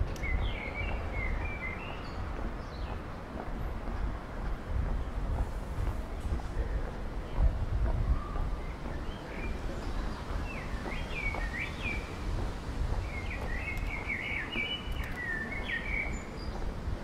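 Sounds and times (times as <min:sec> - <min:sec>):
songbird singing: 0:00.0 - 0:03.3, 0:08.0 - 0:17.0.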